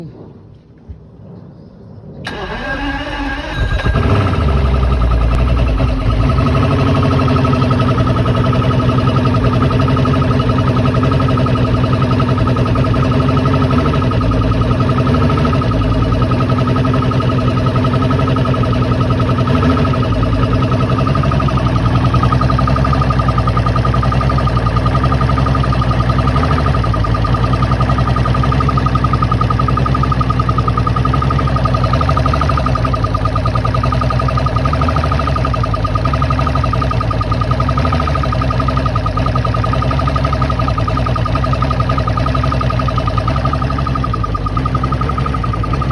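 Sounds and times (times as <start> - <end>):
outboard engine idling roughly: 2.2 - 45.9.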